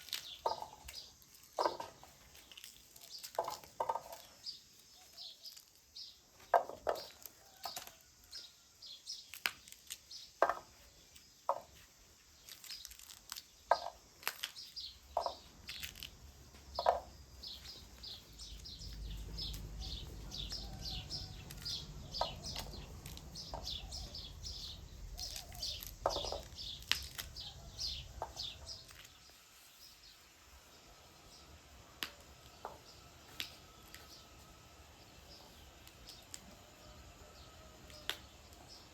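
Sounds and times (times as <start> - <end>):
bean pods snapping open: 0.0 - 4.4, 9.1 - 10.7, 12.4 - 17.1, 18.0 - 29.2, 33.2 - 34.2, 37.8 - 38.8
birds chirping: 0.0 - 7.7, 12.4 - 38.9
low rumble: 18.3 - 25.3.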